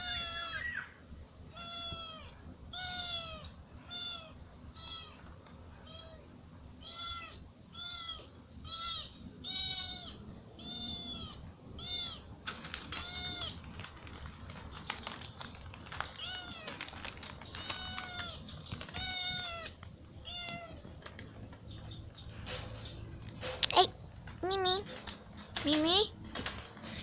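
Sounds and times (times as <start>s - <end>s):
kitten meowing: 1.6s - 5.2s, 6.8s - 12.3s, 17.6s - 20.8s.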